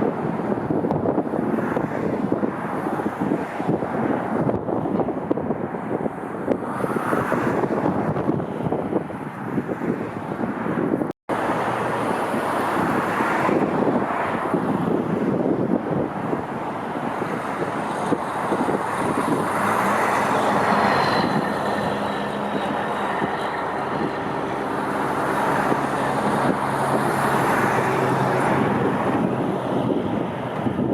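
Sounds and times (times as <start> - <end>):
jet engine roar: 11.3 - 30.9.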